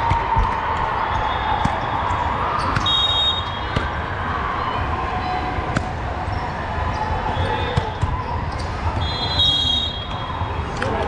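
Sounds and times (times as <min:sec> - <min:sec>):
gym hall din: 0:00.0 - 0:11.0
volleyball thuds: 0:01.6 - 0:03.0, 0:03.6 - 0:04.1
shoe squeak: 0:06.2 - 0:10.2.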